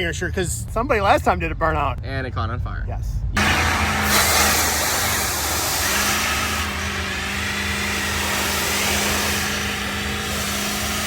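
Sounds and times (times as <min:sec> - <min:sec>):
loud rushing hiss: 0:03.4 - 0:11.0
truck engine revving high: 0:03.4 - 0:11.0.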